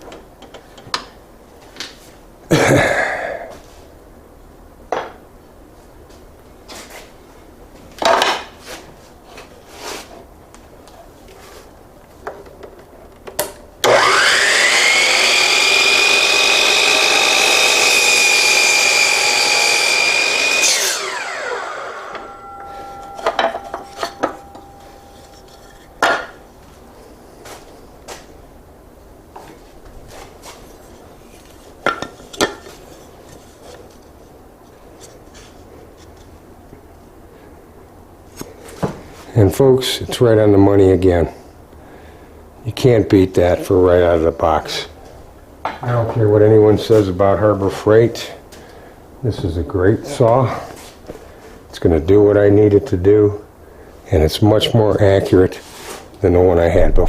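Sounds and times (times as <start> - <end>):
miter saw motor whine: 13.8 - 26.4.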